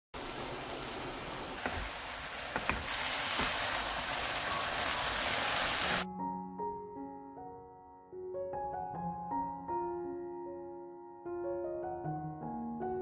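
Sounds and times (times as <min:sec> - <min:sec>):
meat sizzling in a pan: 0:00.2 - 0:06.1
wooden spatula knocking on pan: 0:01.6 - 0:03.7
gentle piano music: 0:04.2 - 0:13.0.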